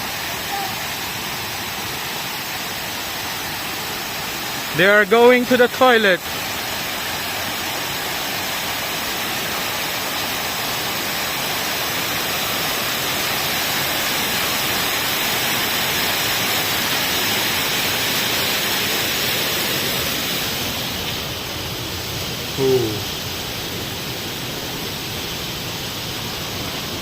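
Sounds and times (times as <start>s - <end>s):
loud rushing hiss: 0.0s - 27.0s.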